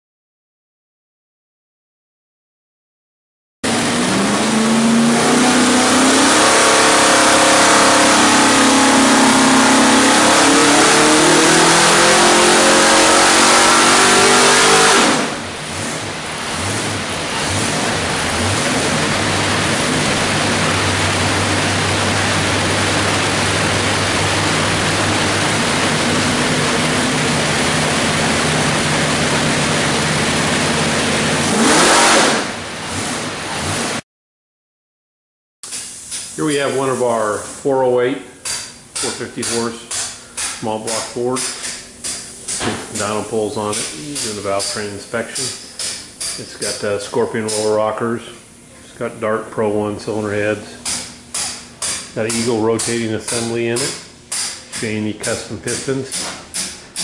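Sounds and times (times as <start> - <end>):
engine revving and idling: 3.6 - 34.0.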